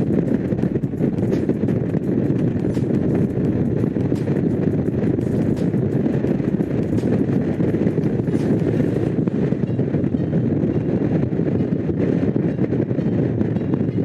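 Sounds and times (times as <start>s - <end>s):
motorcycle engine running: 0.0s - 9.3s
wind rushing over microphone: 0.0s - 14.0s.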